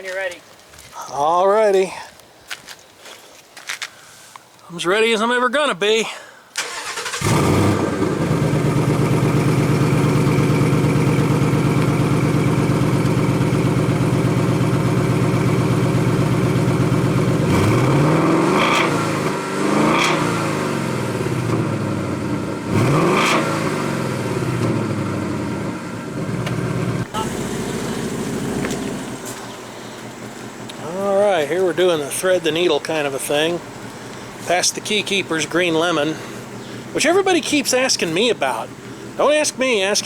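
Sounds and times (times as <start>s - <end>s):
car engine revving: 6.6s - 37.0s
car engine starting and idling: 6.6s - 40.0s.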